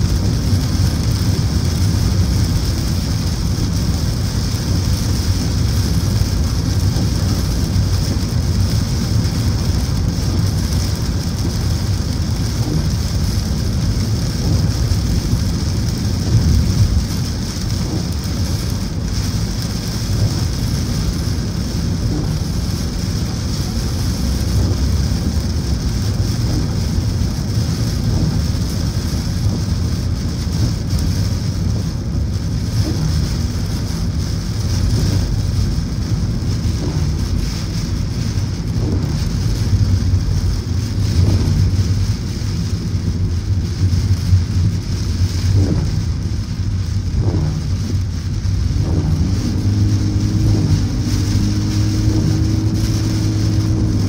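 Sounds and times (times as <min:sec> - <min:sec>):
heavy rain on a car: 0:00.0 - 0:54.0
tyres rumbling on wet road: 0:00.0 - 0:54.0.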